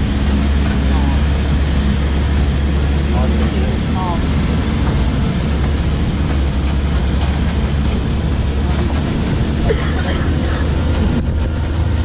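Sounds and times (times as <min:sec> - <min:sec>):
road and wind noise: 0:00.0 - 0:12.0
vehicle engine hum: 0:00.0 - 0:12.0.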